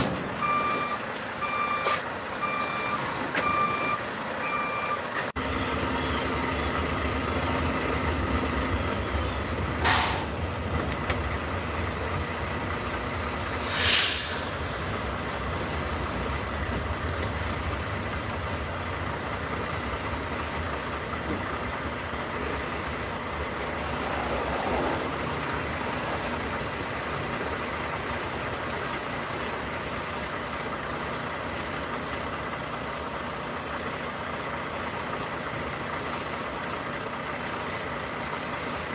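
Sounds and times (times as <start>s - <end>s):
diesel truck engine rumbling: 0.0s - 38.9s
air brake hisses: 9.8s - 10.4s, 13.3s - 16.1s.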